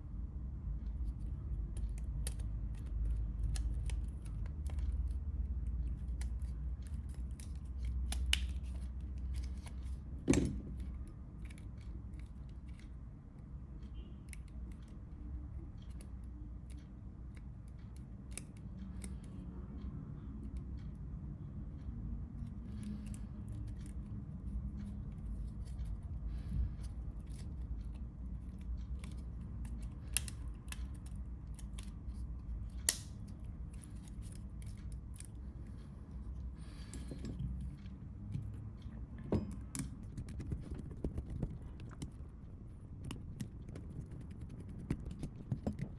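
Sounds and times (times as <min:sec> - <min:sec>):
steady low hum: 0:00.0 - 0:45.9
small parts clicking and tapping: 0:00.8 - 0:45.9
sharp snaps: 0:32.7 - 0:33.3.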